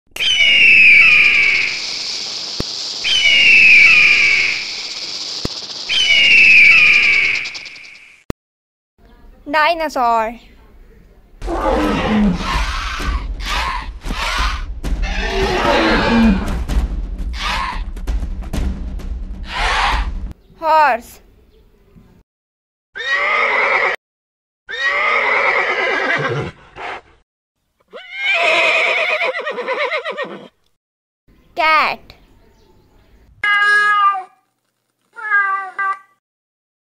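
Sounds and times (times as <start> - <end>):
bird of prey screaming: 0.2 - 2.0, 3.0 - 5.3, 5.9 - 7.9, 11.6 - 16.5, 17.4 - 17.8, 19.5 - 20.1, 23.0 - 24.0
horse whinnying: 11.4 - 14.4, 15.0 - 16.6, 23.0 - 24.0, 24.7 - 27.0, 27.9 - 30.6.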